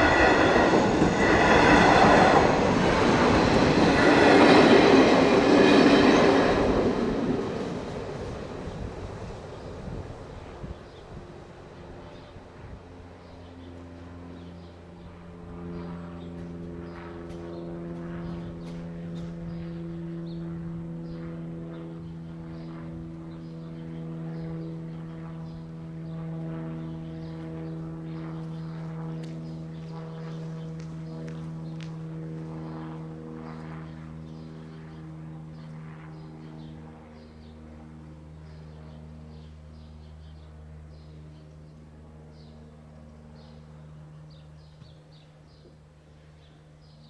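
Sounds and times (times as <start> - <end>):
train low hum: 0.0 - 36.2.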